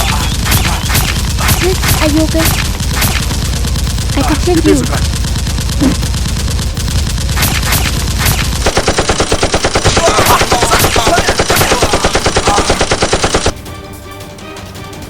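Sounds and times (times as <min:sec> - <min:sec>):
single gunshots: 0:00.0 - 0:03.5, 0:07.3 - 0:13.6
heavy rumble: 0:00.0 - 0:12.2
machine-gun fire: 0:00.0 - 0:13.6.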